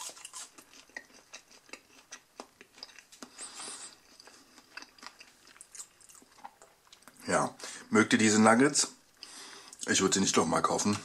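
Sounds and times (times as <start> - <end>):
faint chewing: 0.0 - 7.2.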